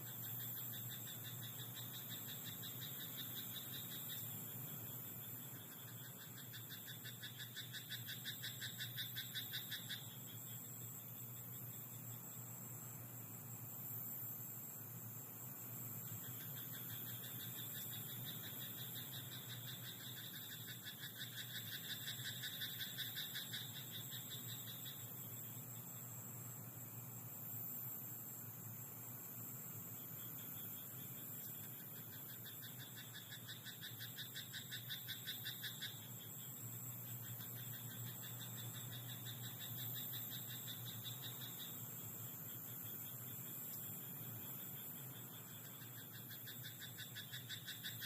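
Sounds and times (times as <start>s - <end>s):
high-pitched insect trill: 0.0s - 48.0s
frog croaking: 0.2s - 10.6s, 16.1s - 25.3s, 30.2s - 36.6s, 37.2s - 48.0s.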